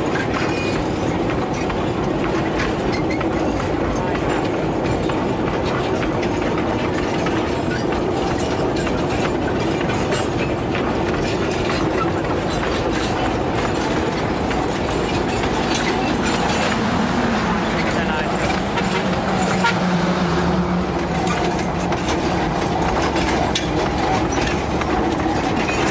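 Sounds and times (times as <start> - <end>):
train running over track: 0.0 - 25.9
wagons rattling and clicking: 0.0 - 25.9.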